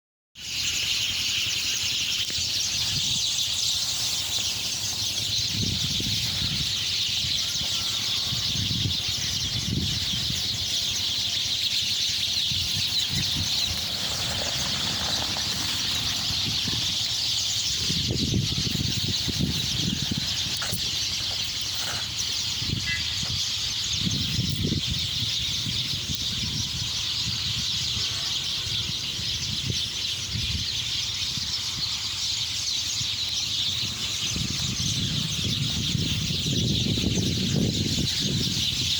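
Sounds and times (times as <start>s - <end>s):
flock of small birds chattering: 0.4s - 38.9s
low rumbles: 12.2s - 22.3s.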